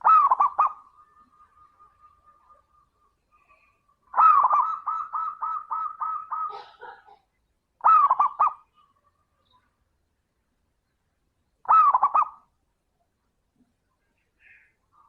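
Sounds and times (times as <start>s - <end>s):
dove cooing: 0.0s - 7.1s, 7.8s - 9.0s, 11.7s - 12.4s.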